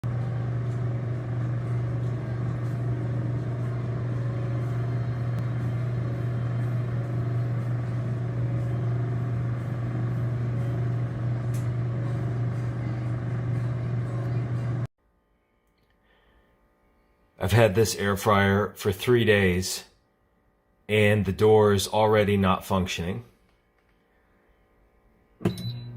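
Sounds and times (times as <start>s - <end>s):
low-pitched hum: 0.0s - 14.9s.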